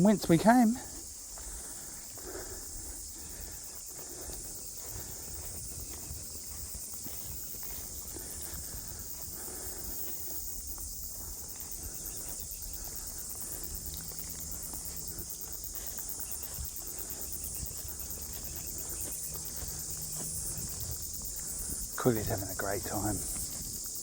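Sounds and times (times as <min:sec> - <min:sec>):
insect chorus: 0:00.0 - 0:24.0
footsteps on a track: 0:03.0 - 0:24.0.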